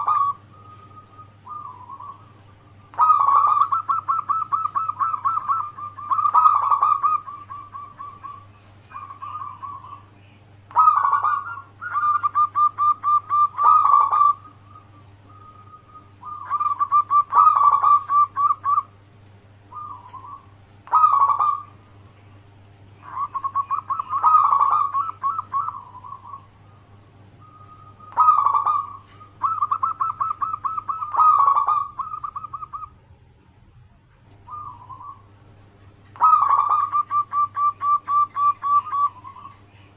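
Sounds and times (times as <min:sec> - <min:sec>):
dove cooing: 0:00.0 - 0:33.0, 0:34.4 - 0:39.9.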